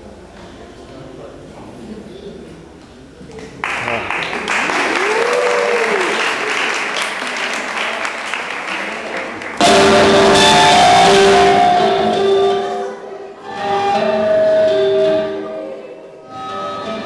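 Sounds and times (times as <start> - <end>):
audience applauding: 3.4 - 11.8
music with held notes: 9.6 - 17.0.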